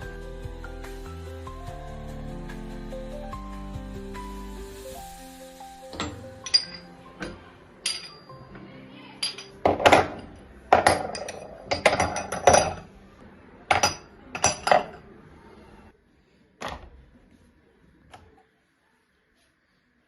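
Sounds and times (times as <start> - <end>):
dishes and cutlery clinking: 5.9 - 8.6, 9.2 - 12.9, 13.7 - 15.1.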